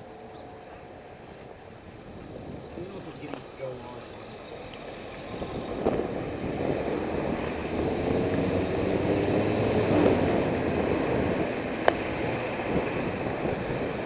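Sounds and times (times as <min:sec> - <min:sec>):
vehicle engine drone: 0:00.0 - 0:14.0.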